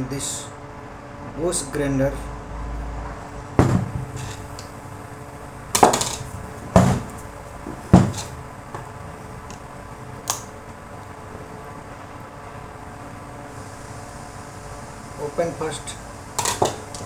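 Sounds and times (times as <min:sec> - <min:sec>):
tools knocking on work surface: 0:03.6 - 0:04.5, 0:05.8 - 0:08.9.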